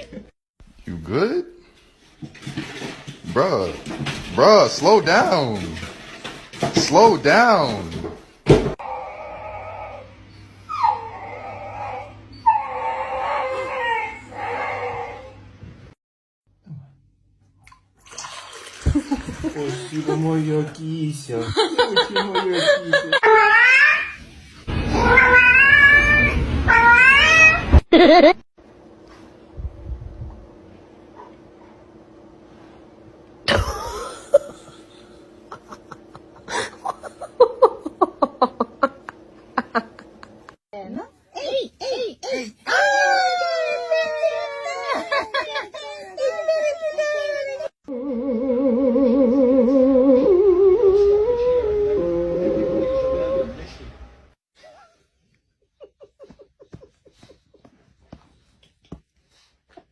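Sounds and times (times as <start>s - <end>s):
dog whining and howling: 8.8s - 15.5s, 41.4s - 53.8s.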